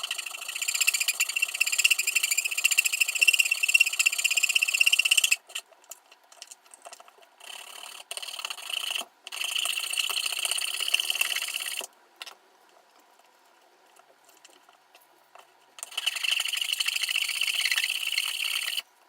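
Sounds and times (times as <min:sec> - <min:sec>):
small electric drill motor: 0:15.9 - 0:18.8.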